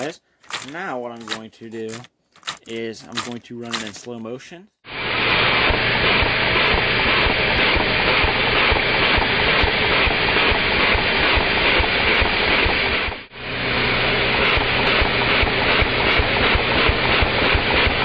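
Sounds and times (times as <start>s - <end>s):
vacuum suction hiss: 4.9s - 18.0s.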